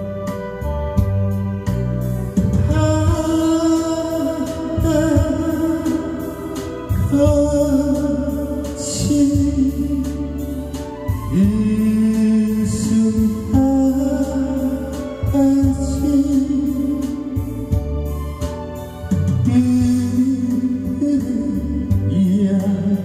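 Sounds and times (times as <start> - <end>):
guitar accompaniment: 0.0 - 23.0
person singing long notes: 2.6 - 17.8.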